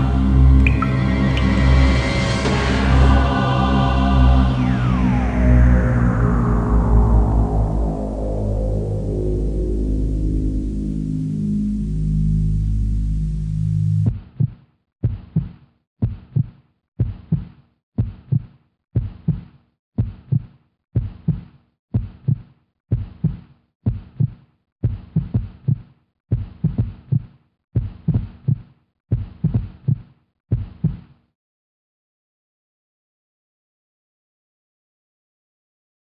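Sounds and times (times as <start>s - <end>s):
heartbeat thumps: 14.0s - 31.0s.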